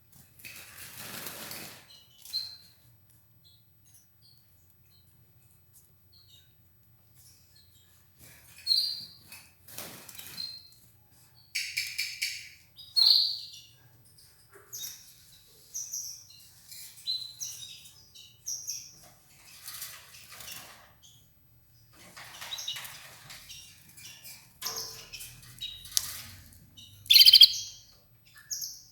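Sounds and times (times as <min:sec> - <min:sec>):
canary chirping: 0:11.5 - 0:13.8, 0:22.4 - 0:28.9.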